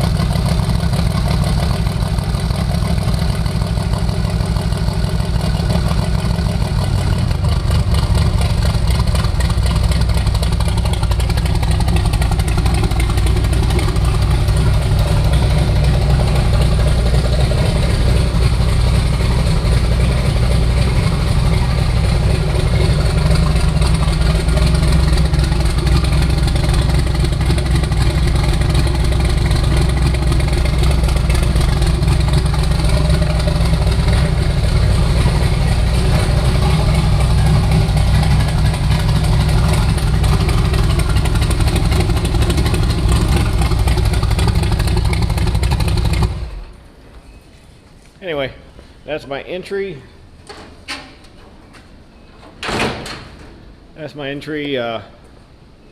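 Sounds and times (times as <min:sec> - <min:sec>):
car engine idling: 0:00.0 - 0:47.0.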